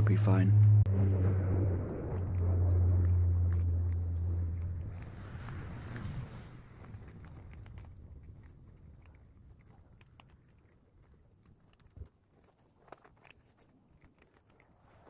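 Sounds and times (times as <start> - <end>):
cats chewing food: 2.1 - 15.0.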